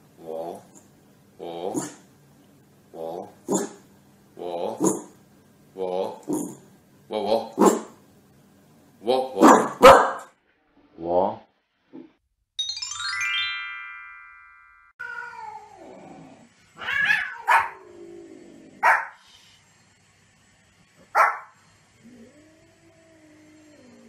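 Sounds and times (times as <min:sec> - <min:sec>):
dog barking sharply: 0:09.4 - 0:10.3, 0:17.1 - 0:17.8, 0:18.8 - 0:19.2, 0:21.2 - 0:21.5
bright chiming jingle: 0:12.6 - 0:15.0
cat meowing: 0:15.0 - 0:15.9, 0:16.8 - 0:17.8.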